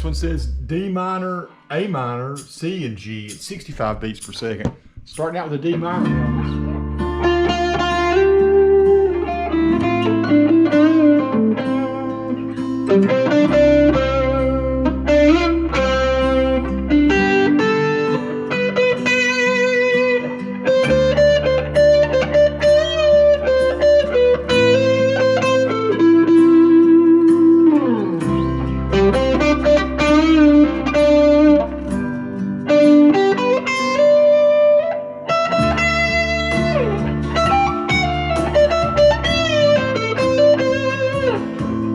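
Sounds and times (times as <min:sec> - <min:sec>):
backing track chords: 0:00.0 - 0:02.8, 0:05.9 - 0:41.9
electric guitar lead line: 0:05.8 - 0:41.9.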